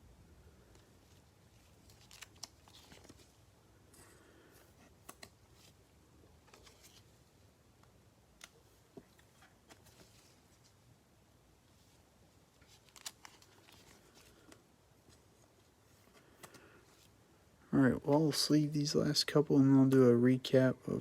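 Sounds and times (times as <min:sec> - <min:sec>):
trading cards clicking and rustling: 0:01.6 - 0:03.4, 0:04.8 - 0:05.8, 0:12.6 - 0:15.3, 0:16.0 - 0:17.1.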